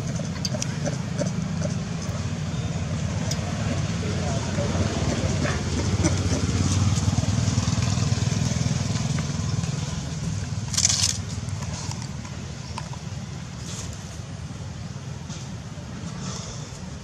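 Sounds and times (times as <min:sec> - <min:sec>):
motor engine running: 0:00.0 - 0:12.4.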